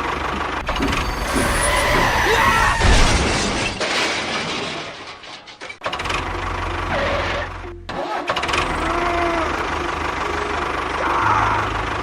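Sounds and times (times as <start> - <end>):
tractor engine running: 0.0 - 2.6, 5.8 - 12.0.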